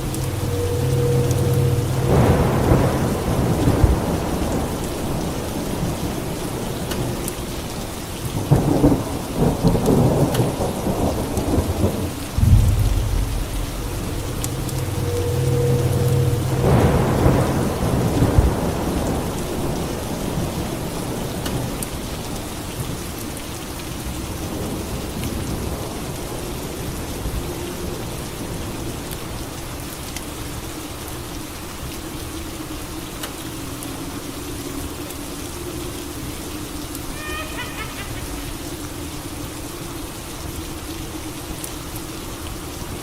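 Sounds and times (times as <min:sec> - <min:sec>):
water drips: 0:00.0 - 0:04.7, 0:12.4 - 0:18.4
thunderclap rumbling: 0:00.0 - 0:06.3, 0:08.5 - 0:20.1
steady rain: 0:00.0 - 0:43.0.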